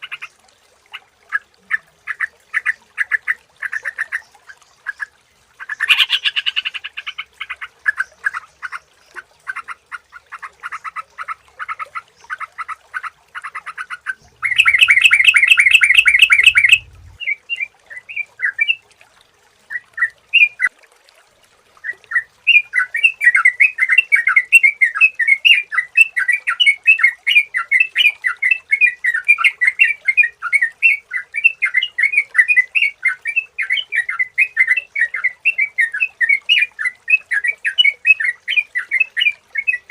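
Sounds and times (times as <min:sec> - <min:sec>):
bulbul chattering calls: 0:05.7 - 0:07.2, 0:14.4 - 0:17.1.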